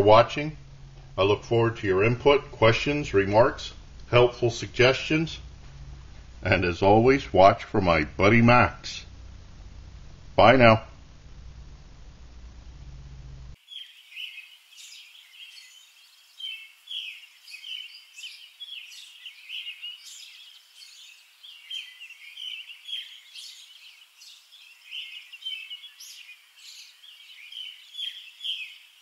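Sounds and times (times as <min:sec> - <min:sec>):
small birds chirping: 0:13.5 - 0:29.0.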